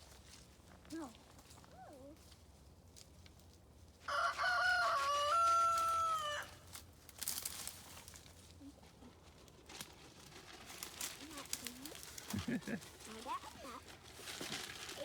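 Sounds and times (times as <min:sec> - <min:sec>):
rooster crowing: 0:04.1 - 0:06.6.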